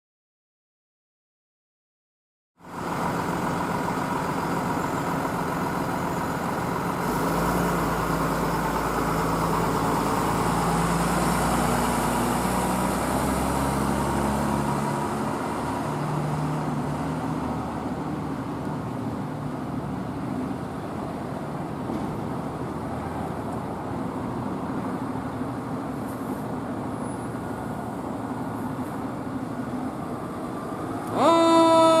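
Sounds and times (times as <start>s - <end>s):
truck engine running: 2.6s - 22.8s
road traffic noise: 2.6s - 32.0s.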